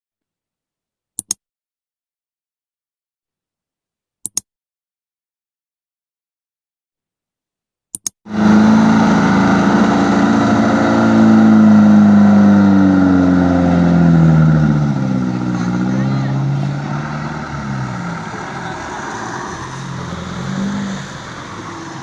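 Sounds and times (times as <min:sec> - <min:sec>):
short clicks: 0:01.2 - 0:01.4, 0:04.2 - 0:04.5, 0:07.9 - 0:08.2
diesel truck engine revving: 0:08.3 - 0:22.0.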